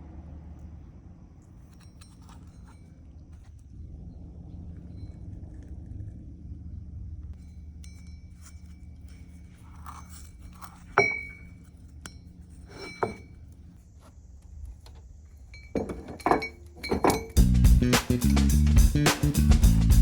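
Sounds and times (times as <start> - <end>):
low steady hum: 0.0 - 17.6
light metallic clinks: 0.5 - 3.7, 7.4 - 13.8, 14.5 - 17.4
metal striking metal clanks: 11.0 - 11.5, 15.6 - 17.4.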